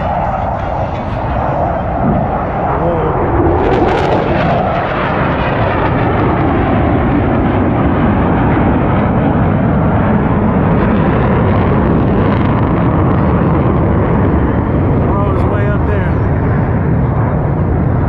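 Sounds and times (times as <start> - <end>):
jet aircraft flying overhead: 0.0 - 18.0.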